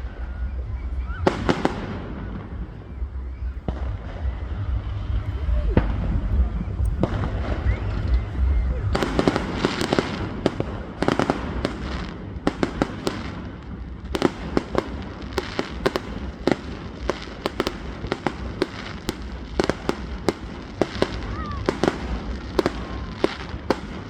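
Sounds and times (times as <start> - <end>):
low rumble: 0.0 - 18.5
fireworks bangs and crackles: 0.0 - 24.0.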